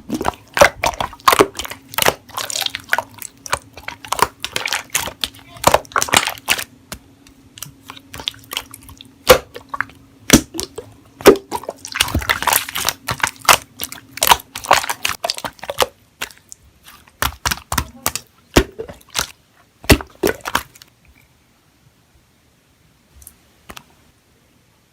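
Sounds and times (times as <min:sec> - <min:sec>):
slime squishing: 0:00.0 - 0:21.0
slime clicking and popping: 0:00.1 - 0:19.3.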